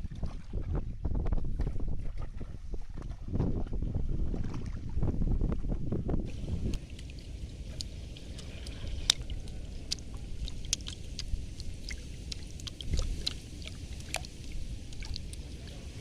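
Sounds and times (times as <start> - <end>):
water sloshing and splashing: 0.0 - 16.0
wind rumble on microphone: 0.0 - 16.0
irregular sharp ticks: 7.7 - 15.4.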